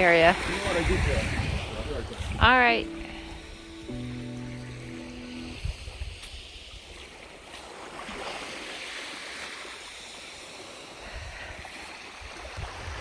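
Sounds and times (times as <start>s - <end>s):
wind rumble on microphone: 0.0s - 2.8s, 12.2s - 13.0s
sea waves washing onto shore: 0.0s - 13.0s.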